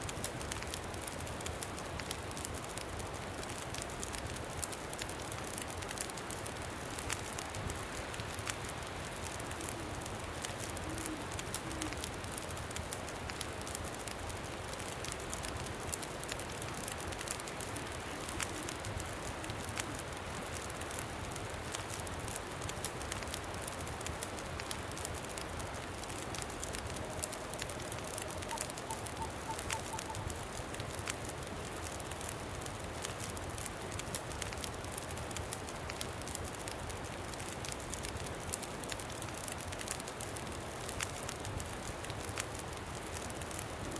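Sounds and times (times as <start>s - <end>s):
campfire crackling: 0.0s - 43.9s
bird call with high pips: 28.4s - 30.3s.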